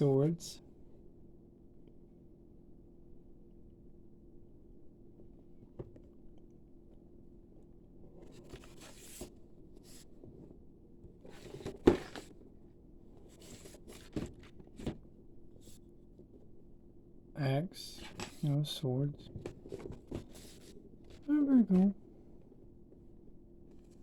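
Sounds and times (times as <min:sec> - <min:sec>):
plastic rustling and scraping: 0:08.2 - 0:10.5, 0:11.2 - 0:12.4, 0:13.2 - 0:15.0, 0:19.3 - 0:21.3.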